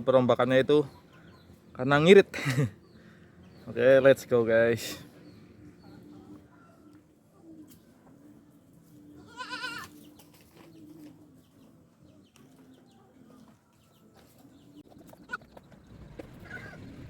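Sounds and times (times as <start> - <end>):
goat bleating: 9.2 - 9.9.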